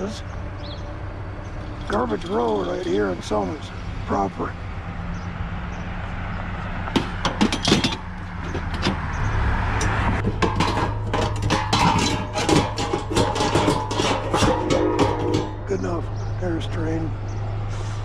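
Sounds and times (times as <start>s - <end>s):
truck engine humming: 0.0s - 18.0s
scrap metal rattling: 1.4s - 4.2s, 6.8s - 17.4s.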